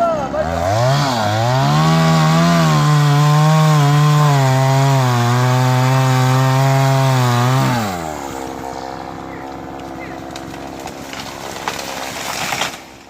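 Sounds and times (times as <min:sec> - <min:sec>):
chainsaw cutting wood: 0:00.3 - 0:13.0.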